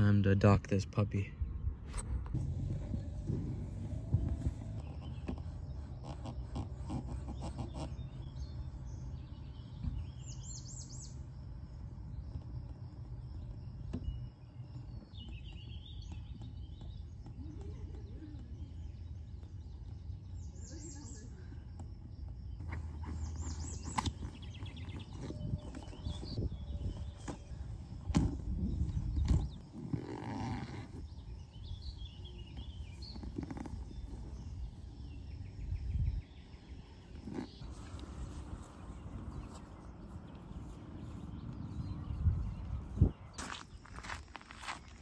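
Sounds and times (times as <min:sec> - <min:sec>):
bird chirping: 0:00.0 - 0:45.0
low steady rumble: 0:01.2 - 0:20.6.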